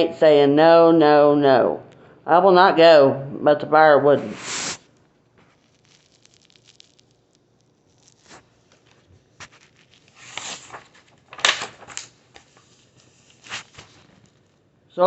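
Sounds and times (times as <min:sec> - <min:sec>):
paper pages rustling: 0:08.0 - 0:14.6.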